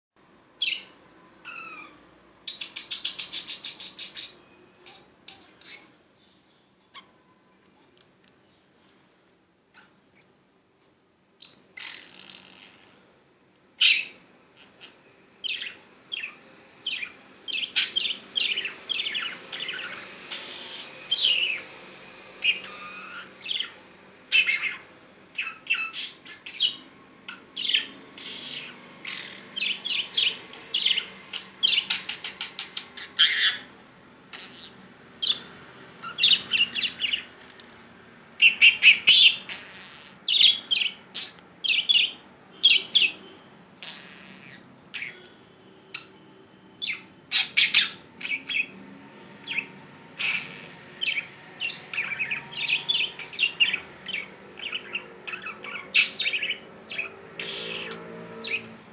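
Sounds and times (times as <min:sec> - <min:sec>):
budgerigar chattering and warbling: 0:11.4 - 0:13.0, 0:25.4 - 0:33.7, 0:34.3 - 0:35.4, 0:50.2 - 0:58.6.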